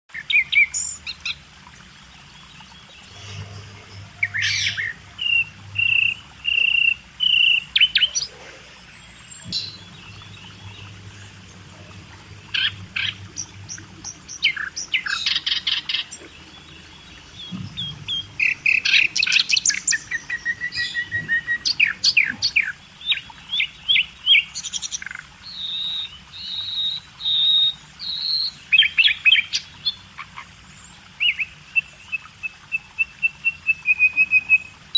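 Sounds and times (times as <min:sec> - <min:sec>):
birds chirping and trilling: 0:01.7 - 0:22.7.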